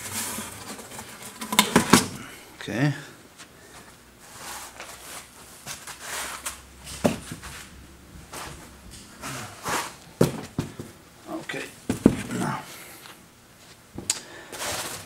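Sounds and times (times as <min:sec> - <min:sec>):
cardboard rustling and scraping: 0:00.0 - 0:02.1, 0:08.3 - 0:10.9.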